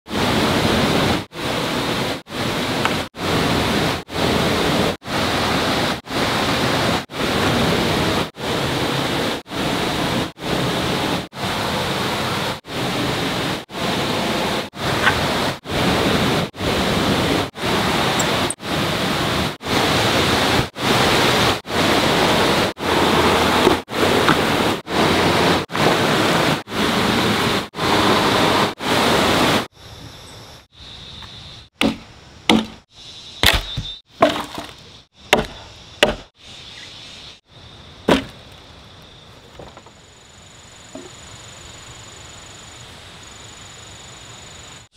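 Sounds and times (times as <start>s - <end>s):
steady rushing noise: 0.1s - 29.7s.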